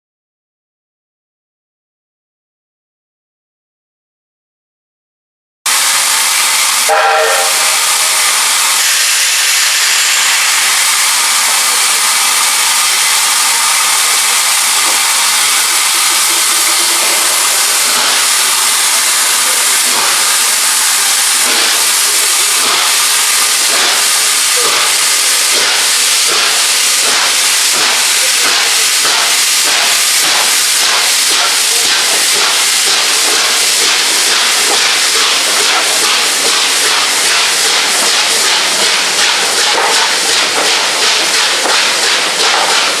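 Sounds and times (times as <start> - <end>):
steam hissing: 5.7 - 43.0.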